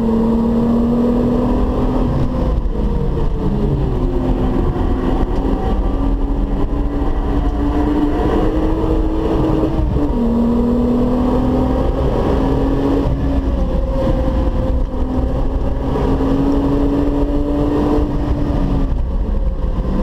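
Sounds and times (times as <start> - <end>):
road noise rumble: 0.0 - 20.0.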